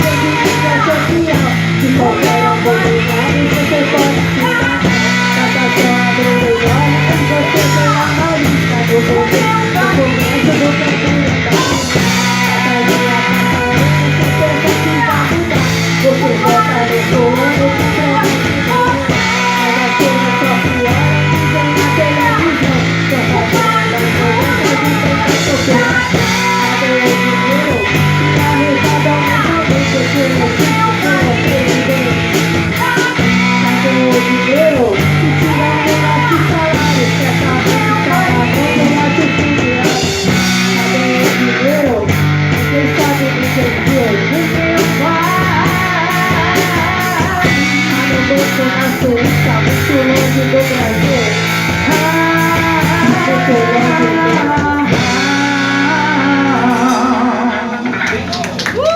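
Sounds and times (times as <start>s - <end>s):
bass line: 0.0s - 58.9s
drums with cymbals: 0.0s - 58.9s
electric guitar: 0.0s - 58.9s
person singing: 0.0s - 58.9s.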